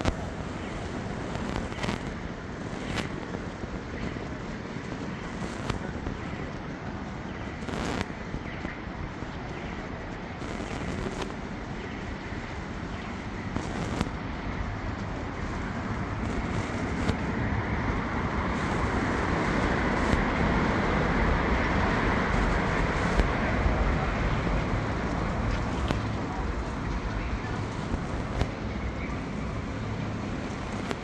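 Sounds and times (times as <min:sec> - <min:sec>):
city traffic on wet streets: 0:00.0 - 0:31.0
faint ticks: 0:01.3 - 0:03.4, 0:05.2 - 0:06.7, 0:07.3 - 0:12.0, 0:12.8 - 0:14.3, 0:25.1 - 0:31.0.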